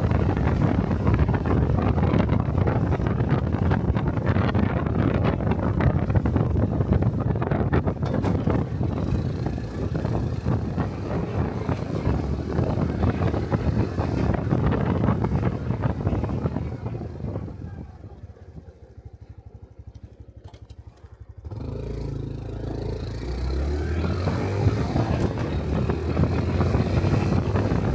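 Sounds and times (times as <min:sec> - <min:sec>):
wind on microphone: 0:00.0 - 0:18.1, 0:22.9 - 0:27.9
motorcycle engine: 0:00.0 - 0:27.9.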